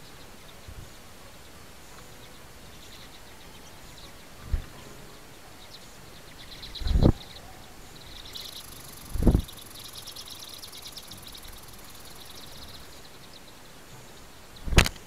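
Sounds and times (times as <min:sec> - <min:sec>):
songbirds chirping: 0:00.0 - 0:15.0
short low thuds: 0:09.2 - 0:09.5.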